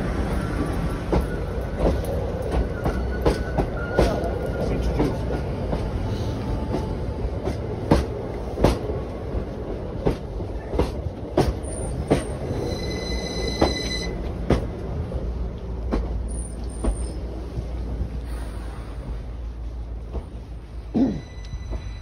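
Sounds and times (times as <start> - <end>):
electric train rumble: 0.0 - 22.0
high wheel squeal: 11.7 - 14.2, 21.1 - 22.0.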